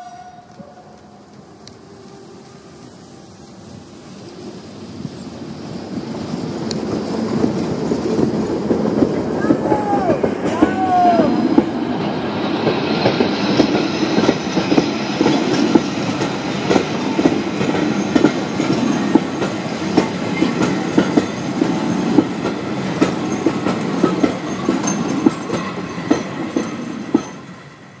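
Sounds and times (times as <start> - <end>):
train wheels clattering over rail joints: 11.5 - 27.4.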